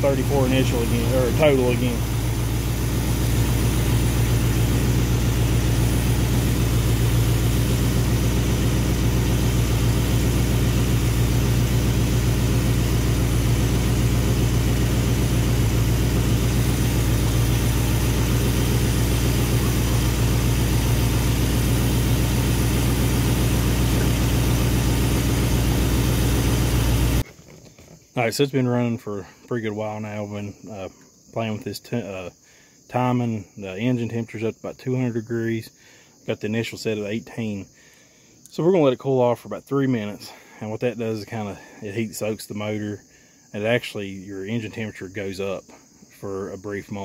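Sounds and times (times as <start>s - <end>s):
car engine idling: 0.0s - 27.3s.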